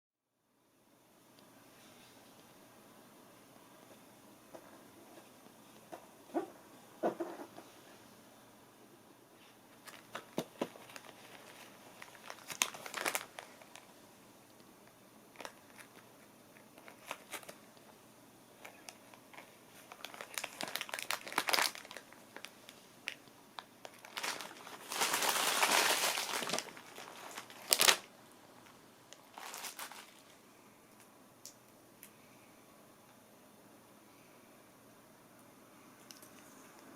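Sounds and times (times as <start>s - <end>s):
crinkly scrap crackling: 9.7s - 14.0s, 15.3s - 17.9s, 18.6s - 30.4s.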